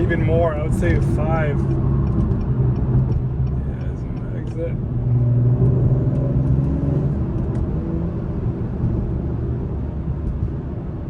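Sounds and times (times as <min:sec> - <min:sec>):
car engine and tyre noise: 0:00.0 - 0:11.0.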